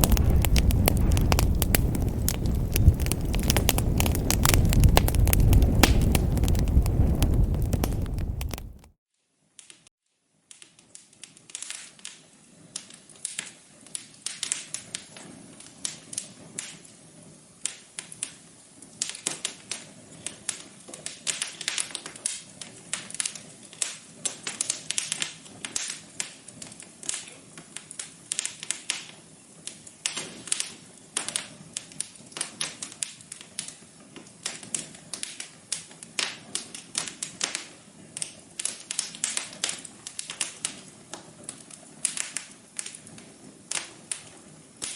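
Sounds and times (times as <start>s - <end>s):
low rumble of flames: 0.0s - 9.0s
wood fire crackling: 0.0s - 9.0s, 11.0s - 44.9s.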